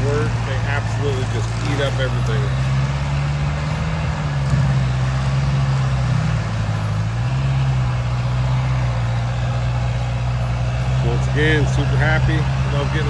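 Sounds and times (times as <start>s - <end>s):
mulcher chewing brush: 0.0s - 2.9s
diesel engine running: 0.0s - 13.0s.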